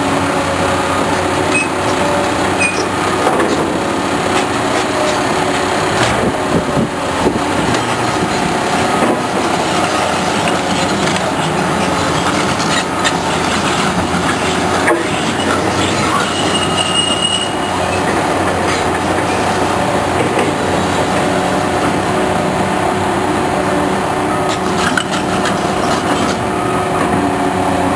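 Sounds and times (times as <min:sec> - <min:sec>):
heavy machinery running: 0:00.0 - 0:27.9
metallic squealing: 0:01.0 - 0:06.0, 0:07.5 - 0:22.3, 0:24.4 - 0:26.4.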